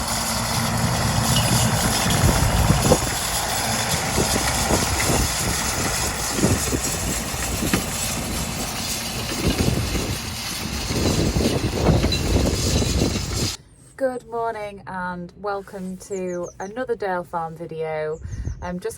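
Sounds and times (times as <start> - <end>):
diesel tractor engine running: 0.0 - 13.6.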